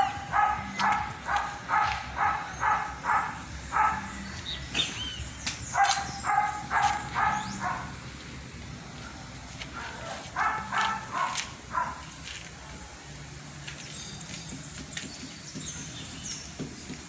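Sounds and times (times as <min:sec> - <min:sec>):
dog barking: 0:00.0 - 0:04.2, 0:05.7 - 0:08.0, 0:09.0 - 0:12.2.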